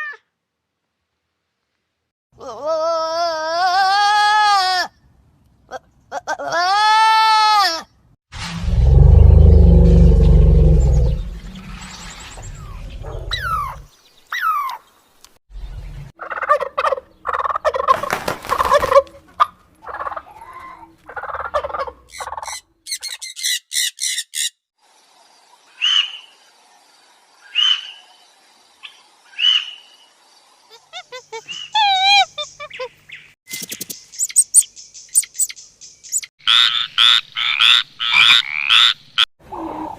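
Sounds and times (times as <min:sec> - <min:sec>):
fowl and birds calling: 0:11.0 - 0:15.0, 0:16.1 - 0:24.5, 0:27.5 - 0:28.2, 0:28.8 - 0:30.1, 0:30.7 - 0:33.4, 0:34.0 - 0:39.9.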